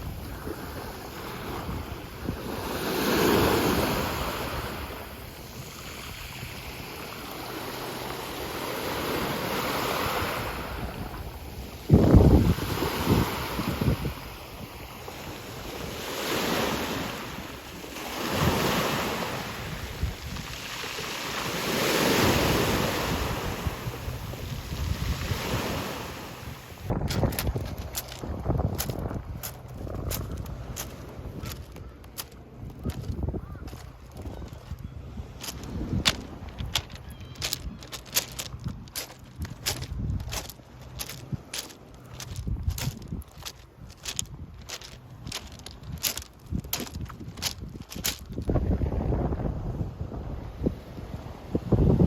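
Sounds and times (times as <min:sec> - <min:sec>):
sea waves washing in: 0:00.0 - 0:28.2
wind on microphone: 0:09.8 - 0:17.6, 0:18.2 - 0:32.0, 0:32.6 - 0:52.0
sea waves surging: 0:14.9 - 0:27.0.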